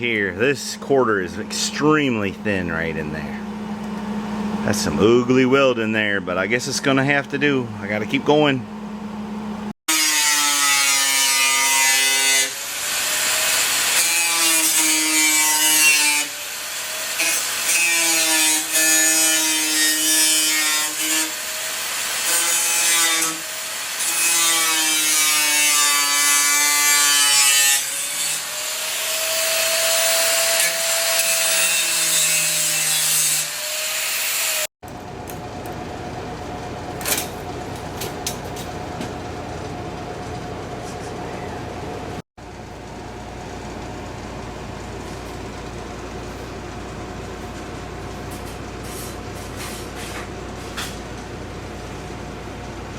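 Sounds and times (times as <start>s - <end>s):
steady hum: 0.0s - 9.7s, 34.8s - 49.2s
electric grinder on sheet metal: 9.9s - 34.7s.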